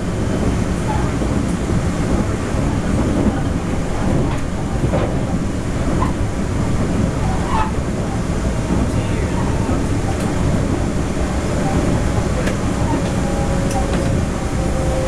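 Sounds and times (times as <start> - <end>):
train car-body noise: 0.0 - 15.0
train wheels rumbling on rail: 0.0 - 15.0.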